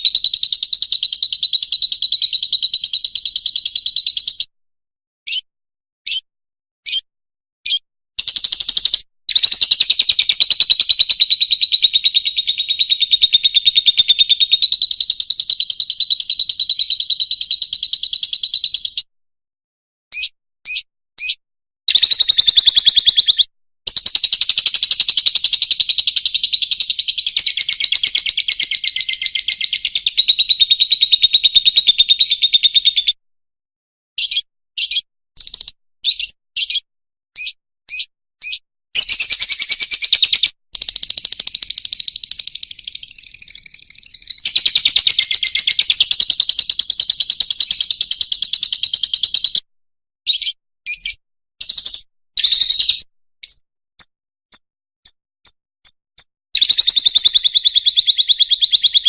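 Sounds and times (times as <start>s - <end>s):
bird chattering twitter: 0.0s - 4.5s, 5.2s - 5.4s, 6.0s - 6.2s, 6.8s - 7.0s, 7.6s - 19.1s, 20.1s - 33.2s, 34.2s - 36.8s, 37.4s - 49.6s, 50.3s - 53.6s, 55.8s - 59.0s
bird chirps: 0.0s - 4.5s, 5.2s - 19.1s, 20.1s - 33.2s, 34.2s - 49.7s, 50.3s - 59.0s.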